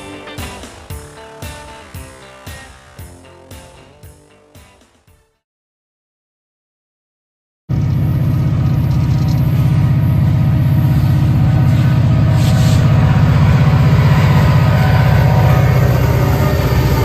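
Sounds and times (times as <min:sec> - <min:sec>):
locomotive engine throbbing: 0:00.0 - 0:04.3, 0:07.7 - 0:17.0.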